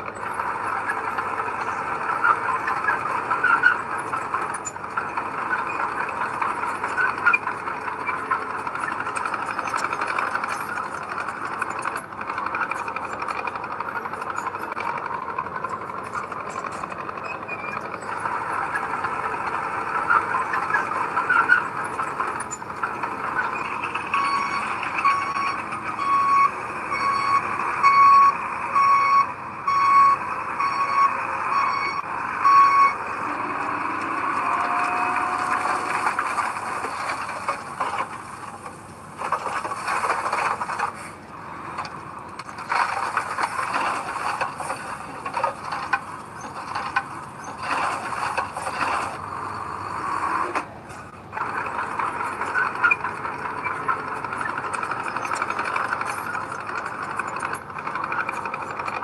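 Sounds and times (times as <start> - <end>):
heavy machinery engine: 0.0 - 59.0
reversing alarm beeping: 23.2 - 35.9
knocks and clanks: 33.1 - 49.2.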